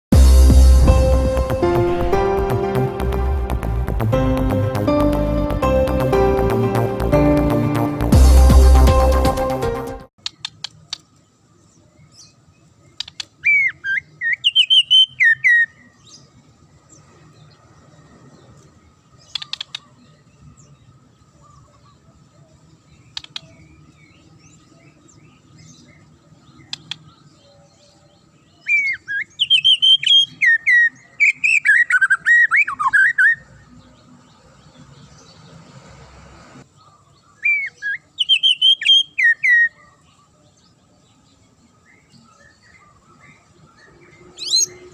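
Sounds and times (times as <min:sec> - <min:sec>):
bird singing whistled phrases: 0:13.4 - 0:15.9, 0:28.6 - 0:33.5, 0:37.4 - 0:39.9.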